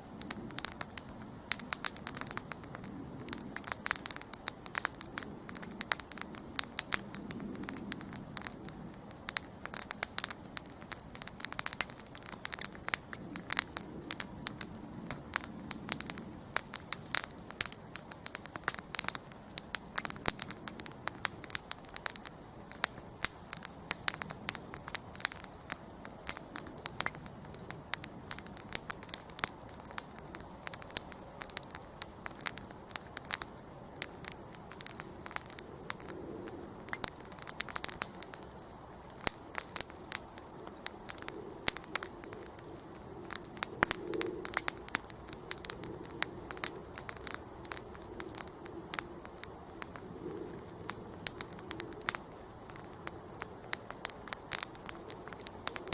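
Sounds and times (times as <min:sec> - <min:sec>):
campfire crackling and popping: 0:00.0 - 0:55.9
low rush of flame: 0:00.0 - 0:55.9.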